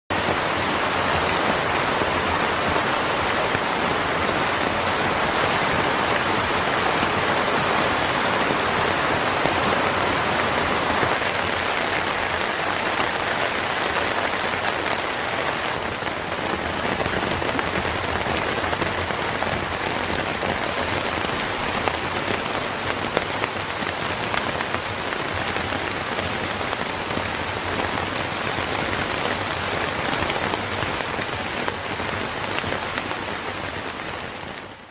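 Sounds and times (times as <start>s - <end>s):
rain pattering on surfaces: 0.1s - 34.9s
sharp raindrop ticks: 16.4s - 25.7s.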